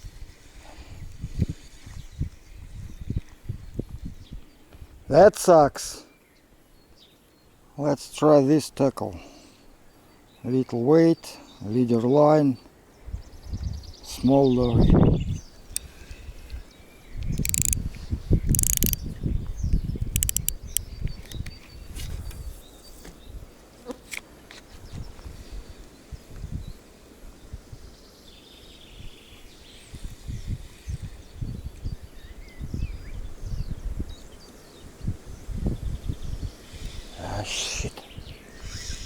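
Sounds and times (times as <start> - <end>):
wind gusting on microphone: 0.1 - 5.1, 13.1 - 22.6, 29.9 - 34.2, 34.9 - 37.3
faint insects: 12.9 - 17.9, 18.5 - 19.2, 20.0 - 21.4
birds chirping: 16.8 - 21.1
sharp clicks: 17.2 - 17.8, 18.5 - 19.0, 20.0 - 20.8.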